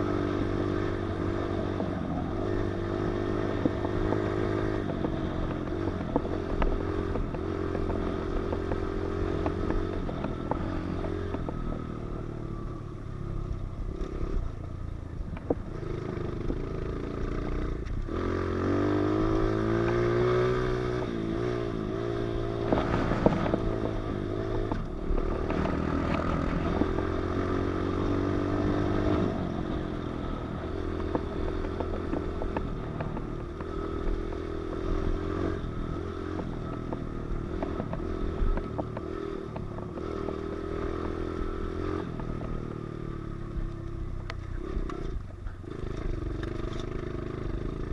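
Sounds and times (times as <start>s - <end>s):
motorbike engine revving: 15.7s - 47.9s.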